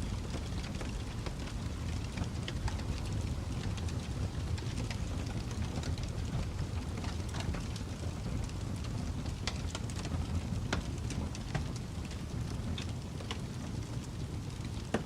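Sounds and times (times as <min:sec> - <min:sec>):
fire flames rumbling: 0:00.0 - 0:15.0
wood fire crackling and popping: 0:00.0 - 0:15.0.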